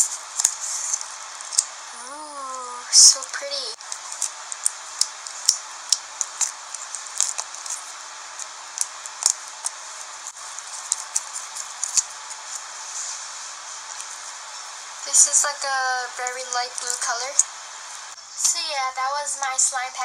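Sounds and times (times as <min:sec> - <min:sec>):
slime clicking and popping: 0:04.1 - 0:07.8, 0:08.4 - 0:09.8.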